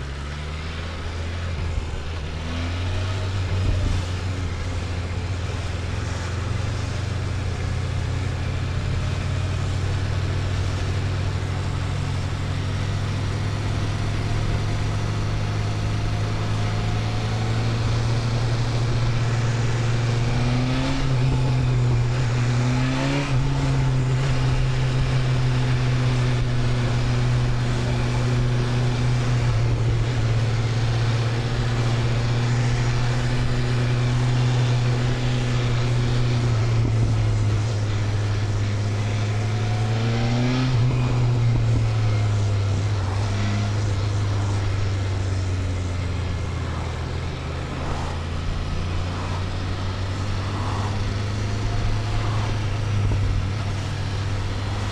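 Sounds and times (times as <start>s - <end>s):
motorcycle engine cruising: 0.0s - 54.9s
wind rush: 46.4s - 54.9s.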